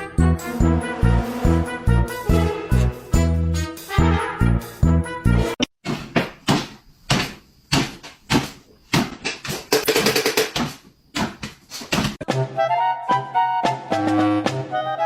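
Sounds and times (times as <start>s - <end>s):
sharp knocks and bumps: 5.8s - 12.4s.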